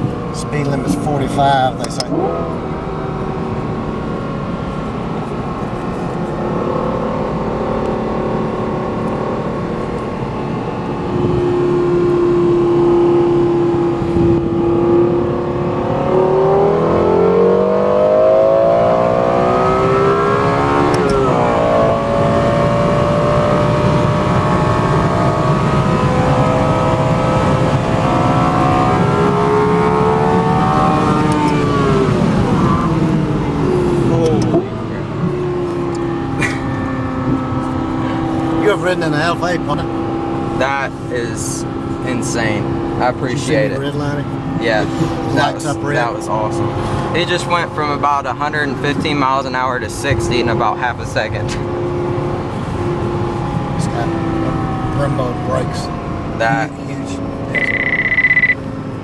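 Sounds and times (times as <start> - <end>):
car engine revving from inside: 0.0 - 59.0.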